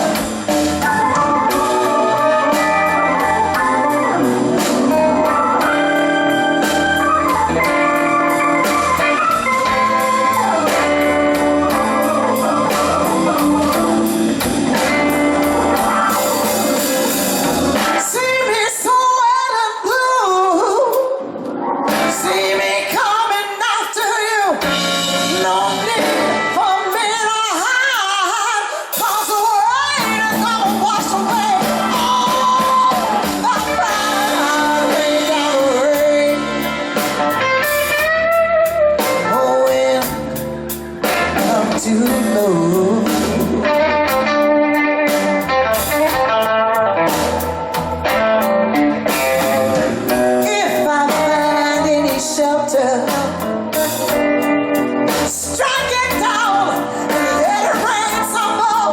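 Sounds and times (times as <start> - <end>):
bass: 0.0 - 58.9
blues band playing: 0.0 - 58.9
guitar: 0.0 - 58.9
woman singing: 17.8 - 21.3, 21.9 - 36.8, 39.0 - 40.4, 41.0 - 45.2, 50.1 - 54.1, 55.1 - 58.9.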